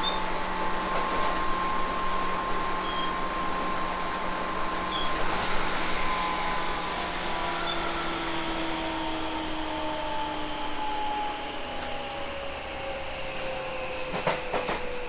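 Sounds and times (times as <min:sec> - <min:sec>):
traction motor whine: 0:00.0 - 0:15.0
train rail running noise: 0:00.0 - 0:15.0
high squeaks: 0:03.9 - 0:05.8.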